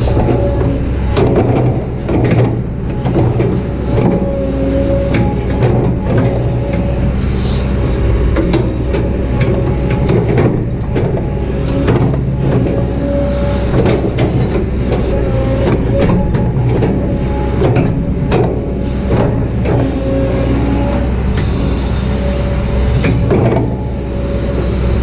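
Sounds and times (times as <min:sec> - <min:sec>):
knocks and clatters: 0:00.0 - 0:04.3, 0:08.1 - 0:12.9, 0:13.7 - 0:20.0
excavator diesel engine: 0:00.0 - 0:25.0
hydraulic whine: 0:00.0 - 0:25.0.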